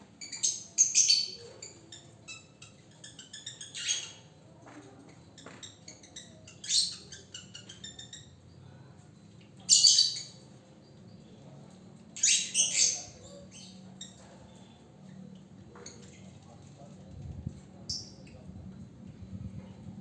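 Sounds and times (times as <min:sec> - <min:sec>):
lovebird chirping and squawking: 0:00.2 - 0:04.4, 0:05.4 - 0:08.4, 0:09.7 - 0:10.4, 0:12.2 - 0:14.3.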